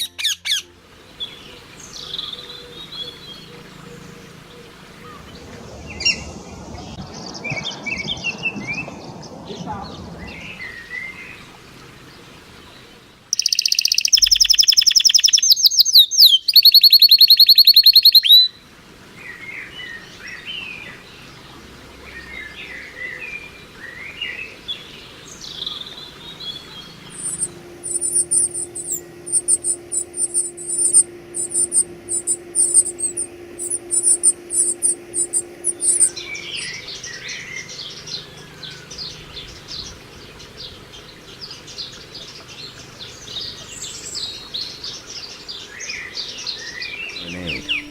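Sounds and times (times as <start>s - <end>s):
birds singing and calling: 0.0s - 18.6s, 19.2s - 47.9s
rapid bird trill: 13.3s - 18.5s, 25.4s - 39.3s, 47.1s - 47.9s.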